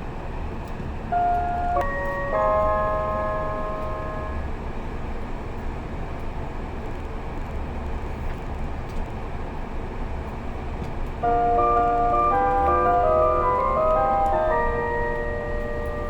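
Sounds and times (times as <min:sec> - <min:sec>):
train carriage running rumble: 0:00.0 - 0:16.0
bell-like onboard chime: 0:01.1 - 0:04.5, 0:11.2 - 0:16.0.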